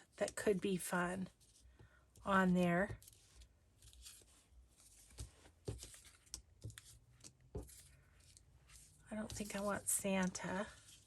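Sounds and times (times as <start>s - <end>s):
paper rustling: 2.9s - 11.0s.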